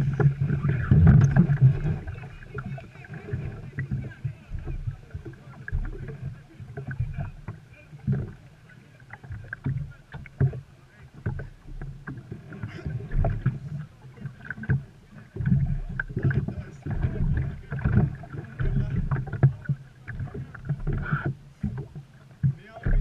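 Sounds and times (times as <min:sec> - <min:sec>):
low thumps and knocks: 0:00.0 - 0:08.4, 0:14.5 - 0:23.0
water splashing around boat: 0:00.0 - 0:23.0.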